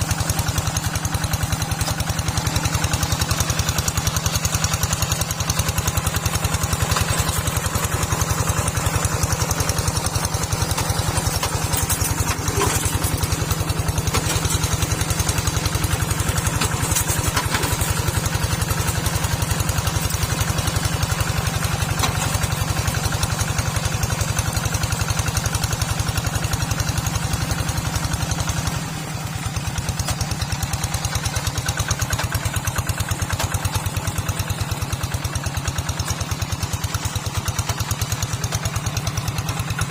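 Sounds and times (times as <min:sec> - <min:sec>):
small tractor engine running: 0:00.0 - 0:39.9.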